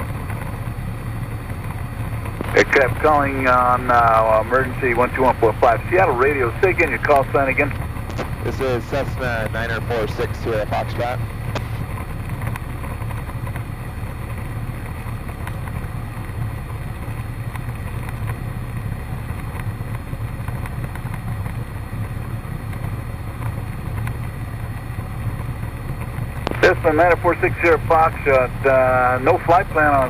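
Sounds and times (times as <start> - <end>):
airplane engine droning in cabin: 0.0 - 30.0.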